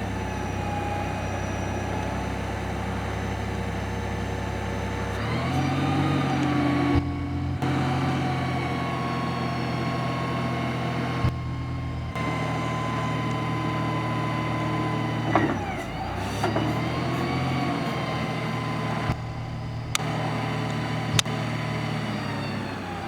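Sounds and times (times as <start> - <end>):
forklift engine running: 0.0 - 23.0
short clicks: 19.9 - 21.4.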